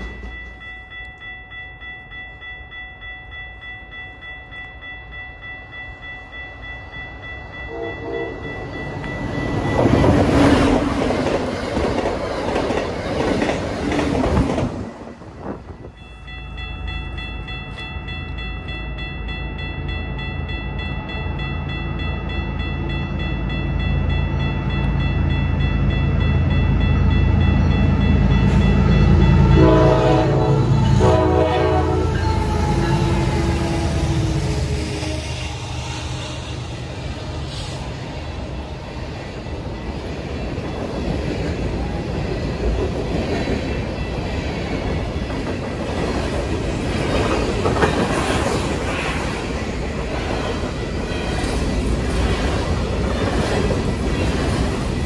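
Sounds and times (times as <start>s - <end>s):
high steady ringing: 0.0s - 10.4s, 15.9s - 37.5s
train rushing past: 5.6s - 16.3s, 18.6s - 55.0s
train horn: 7.6s - 8.5s, 28.6s - 37.7s.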